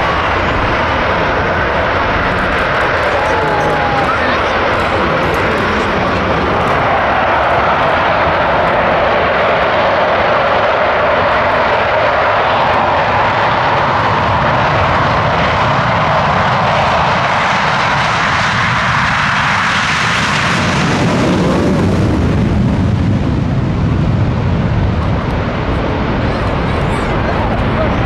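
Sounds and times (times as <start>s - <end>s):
jet roar flying past: 0.0s - 28.0s.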